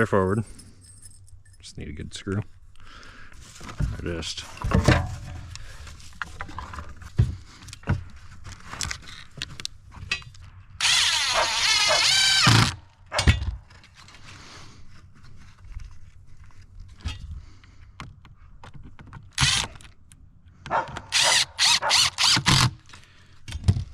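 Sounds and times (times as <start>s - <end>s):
knocks and clicks of handling tools: 3.6s - 5.6s, 6.2s - 10.6s, 22.3s - 23.9s
power drill driving screw into wood: 10.8s - 12.8s, 19.4s - 19.8s, 21.1s - 22.9s.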